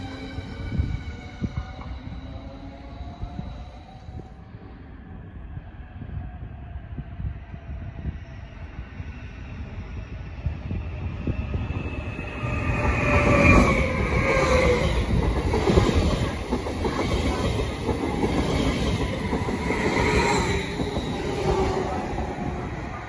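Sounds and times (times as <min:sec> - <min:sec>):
train passing with rumble: 0:00.0 - 0:23.0
high whines sliding down: 0:10.3 - 0:15.2.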